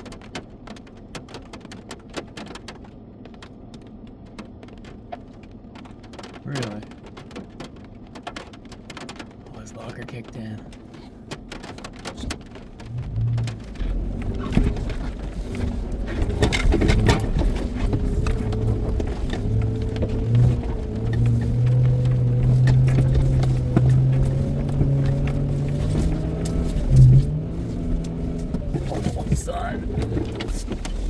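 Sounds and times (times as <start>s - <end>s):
knocks and clicks: 10.2s - 31.0s.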